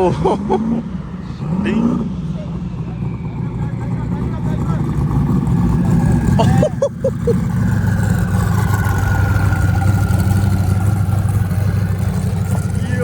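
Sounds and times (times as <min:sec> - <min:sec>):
car engine rumbling: 0:00.0 - 0:13.0
faint high whine: 0:00.7 - 0:05.4.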